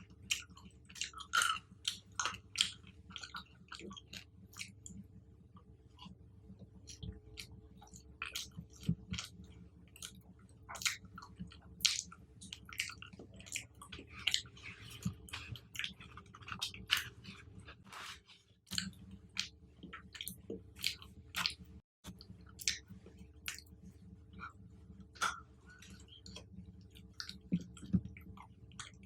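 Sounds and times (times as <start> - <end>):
chewing and biting fruit: 0.3 - 5.0, 6.8 - 22.8.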